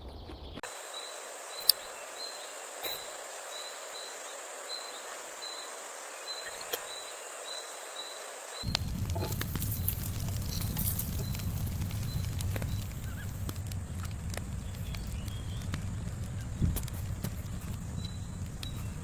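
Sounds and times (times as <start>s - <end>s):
high chirping insect or bird: 0.6s - 19.0s
rushing noise with crackles: 0.6s - 19.0s
steady high hiss: 0.6s - 19.0s
sharp clicks: 1.6s - 1.9s, 8.6s - 19.0s.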